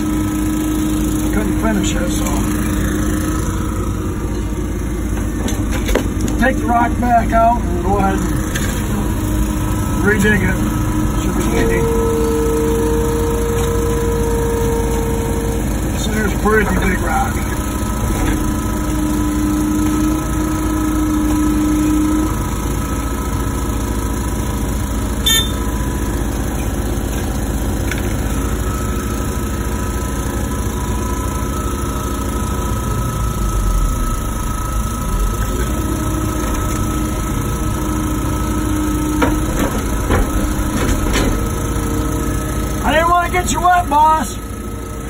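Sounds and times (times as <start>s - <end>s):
excavator engine and hydraulics whine: 0.0s - 45.0s
knocks: 39.2s - 41.5s.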